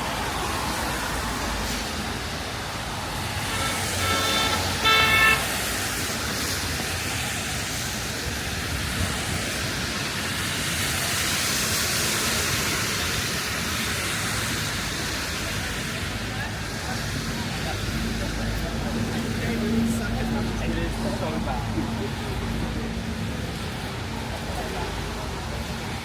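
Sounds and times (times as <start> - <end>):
street traffic noise: 0.0 - 26.0
vehicle horn toots: 3.4 - 5.6.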